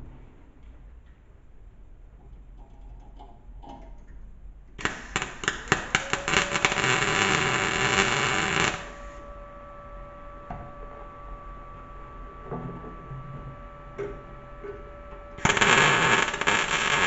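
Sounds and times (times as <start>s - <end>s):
welding arc crackling: 4.8s - 9.2s, 15.4s - 17.0s.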